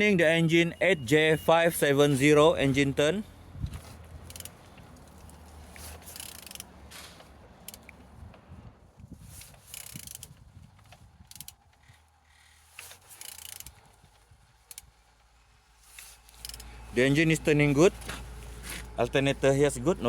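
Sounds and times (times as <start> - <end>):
engine turned over by hand clicking: 3.6 - 8.5, 9.1 - 15.4, 16.0 - 20.0.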